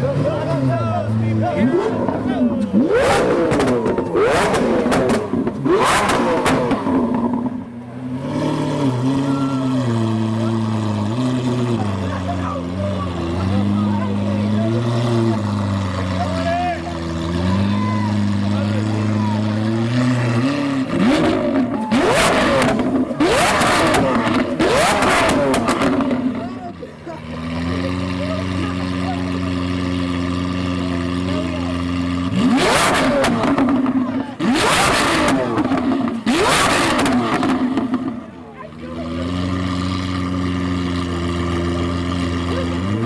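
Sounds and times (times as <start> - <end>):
car engine revving: 0.0 - 43.0
exhaust crackles and pops: 1.8 - 7.6, 18.2 - 38.4
exhaust pops and bangs: 1.9 - 7.6, 20.9 - 26.6.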